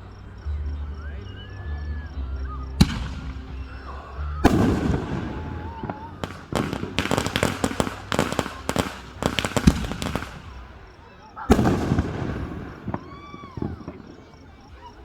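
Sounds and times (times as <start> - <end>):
fireworks crackling: 2.3 - 15.0
fireworks bangs and booms: 2.7 - 15.0.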